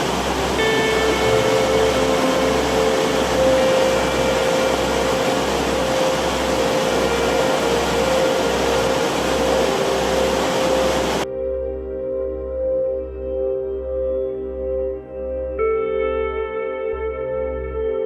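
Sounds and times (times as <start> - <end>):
waterfall rushing: 0.0 - 11.2
slow low pulse: 0.0 - 16.3
ambient music tones: 0.0 - 18.0.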